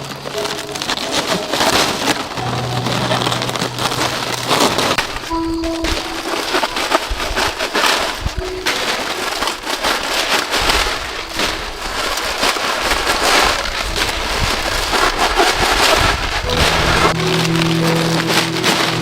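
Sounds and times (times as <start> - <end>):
steady music tones: 0.0 - 10.2, 16.4 - 19.0
heavy rain patter: 0.0 - 19.0.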